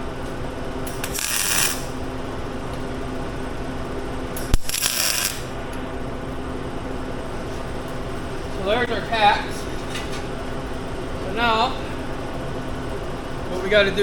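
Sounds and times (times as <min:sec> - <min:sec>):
steady low hum: 0:00.0 - 0:14.0
welding hiss: 0:00.9 - 0:02.0, 0:04.4 - 0:05.6.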